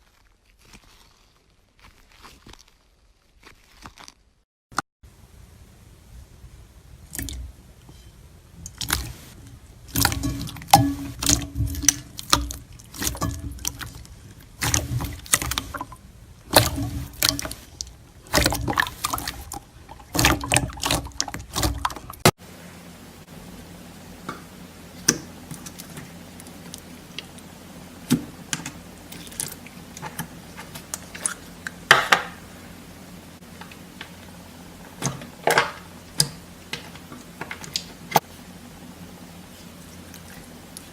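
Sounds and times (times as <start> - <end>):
faint steady hum: 5.0 - 40.9
slime squelching and popping: 8.6 - 22.3.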